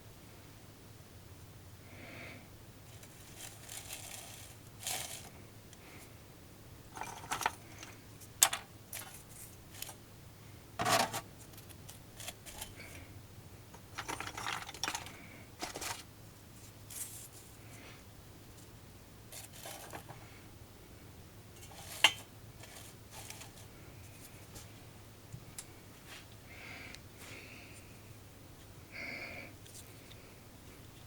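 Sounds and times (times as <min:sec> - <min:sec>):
rustling: 0:02.9 - 0:06.1, 0:13.8 - 0:18.0, 0:19.3 - 0:20.4, 0:21.6 - 0:24.8.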